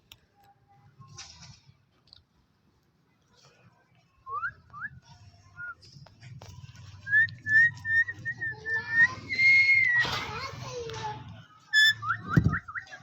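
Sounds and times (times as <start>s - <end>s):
person whistling: 11.8s - 13.0s.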